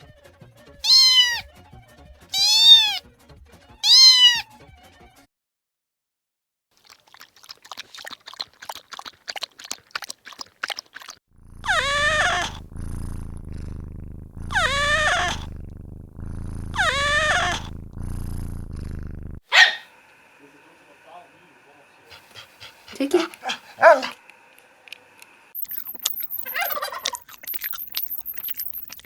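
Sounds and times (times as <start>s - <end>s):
cat meowing: 0.8s - 1.5s, 2.3s - 3.0s, 3.8s - 4.5s, 11.6s - 12.8s, 14.4s - 15.6s, 16.2s - 17.8s
low rumble: 11.6s - 19.4s.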